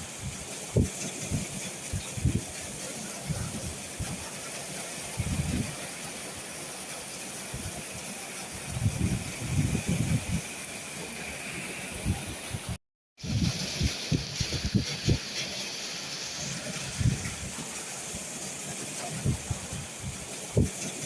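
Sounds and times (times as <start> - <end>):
wind buffeting microphone: 0.0 - 4.4, 5.1 - 5.9, 7.4 - 15.3, 16.5 - 17.8, 19.0 - 21.0
rainstorm hiss: 0.0 - 21.0.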